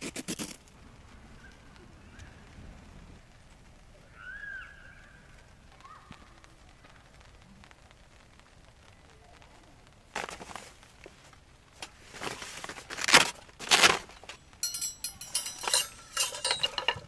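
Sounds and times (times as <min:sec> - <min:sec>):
knocks and rustling scrapes: 0:10.2 - 0:17.0
metal and glass clinks: 0:13.1 - 0:17.0.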